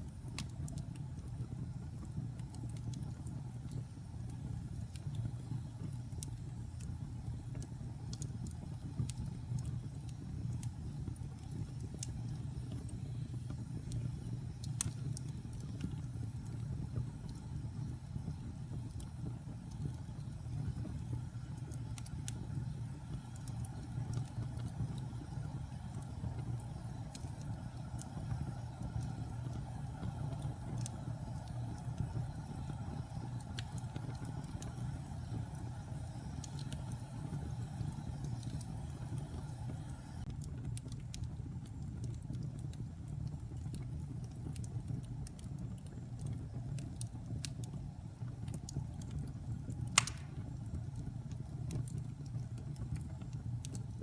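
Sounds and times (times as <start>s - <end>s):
wood fire burning: 0.0s - 54.0s
sharp pop of fire: 50.0s - 50.6s.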